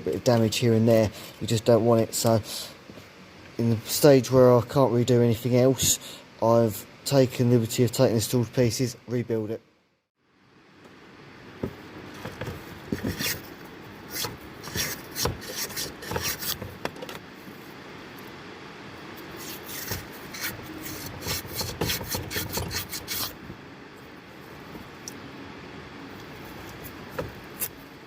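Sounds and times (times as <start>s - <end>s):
scraping and rubbing small parts: 12.2s - 17.2s, 19.2s - 23.4s.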